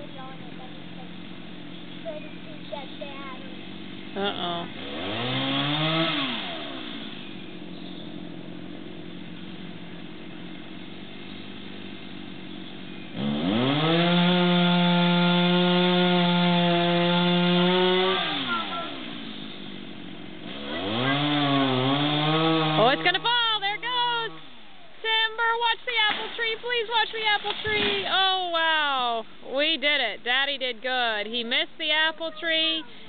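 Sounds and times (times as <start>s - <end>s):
chainsaw cutting and revving: 0.0s - 24.8s, 26.0s - 28.1s.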